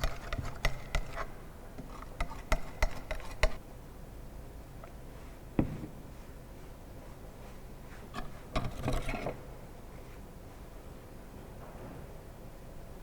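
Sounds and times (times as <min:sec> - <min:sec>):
loud knock: 0:05.6 - 0:06.0.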